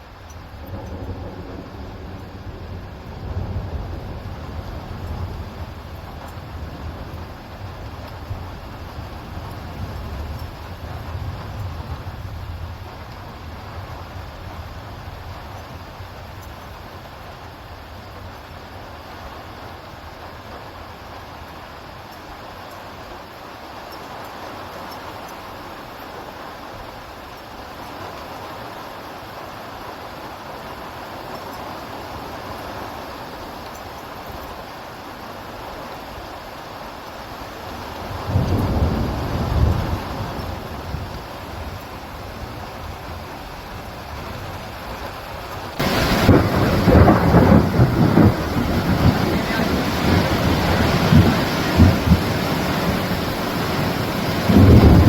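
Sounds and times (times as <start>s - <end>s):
rain: 0.0s - 55.0s
thunder rumbling: 0.2s - 17.0s, 37.7s - 55.0s
storm rushing noise: 37.7s - 55.0s
loud thunder crack: 45.8s - 55.0s.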